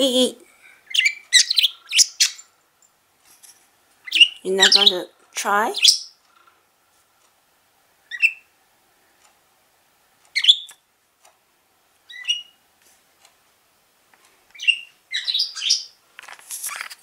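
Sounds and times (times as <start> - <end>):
budgies chirping: 0.8 - 2.5, 4.0 - 5.1, 5.7 - 6.2, 8.1 - 8.5, 10.3 - 10.8, 12.1 - 12.6, 14.5 - 16.0.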